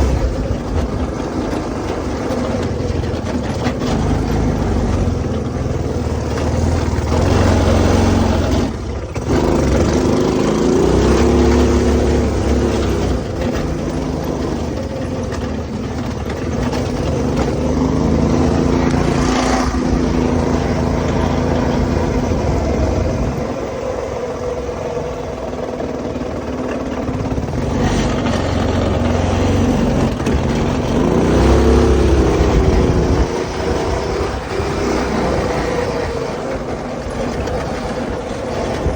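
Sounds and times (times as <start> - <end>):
go-kart engine revving: 0.0 - 38.9.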